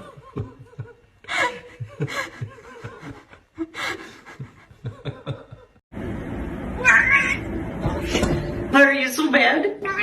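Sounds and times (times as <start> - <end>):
people laughing and gasping: 0.0 - 5.8.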